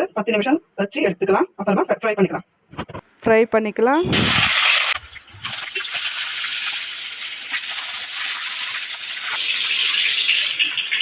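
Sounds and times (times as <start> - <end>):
fish sizzling in hot oil: 4.1 - 11.0.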